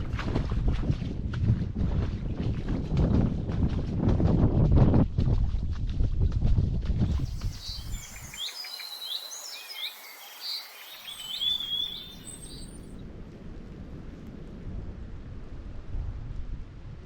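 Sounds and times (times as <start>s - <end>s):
wind buffeting microphone: 0.0s - 17.0s
songbird chirping and whistling: 7.1s - 12.9s.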